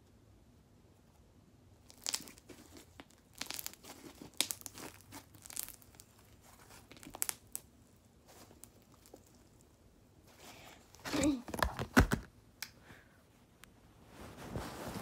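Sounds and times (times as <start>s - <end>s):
slime crackling and popping: 1.8s - 7.7s, 8.3s - 9.7s.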